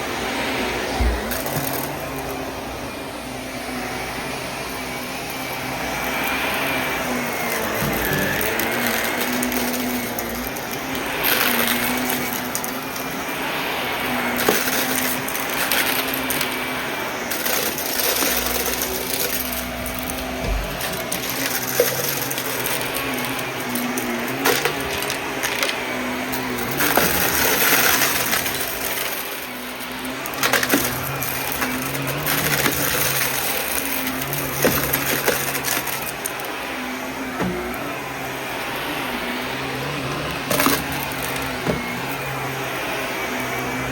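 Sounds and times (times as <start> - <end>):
vacuum cleaner running: 0.0 - 43.9
debris crackling and clicking: 14.2 - 16.6, 17.3 - 36.4, 40.2 - 42.2.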